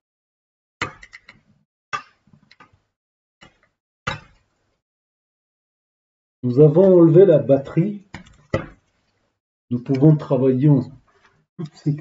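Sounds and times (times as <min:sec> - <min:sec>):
laptop parts clicking and knocking: 0:00.8 - 0:02.8, 0:08.1 - 0:09.0.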